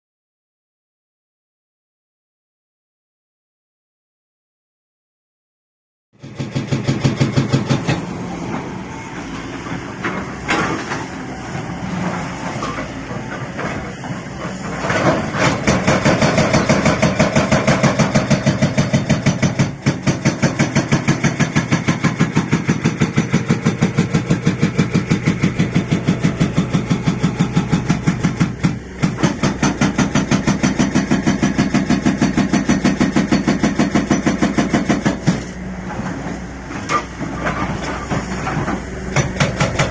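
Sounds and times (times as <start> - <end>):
hydraulic rock breaker hammering: 6.2 - 39.9
diesel engine running: 6.3 - 39.9.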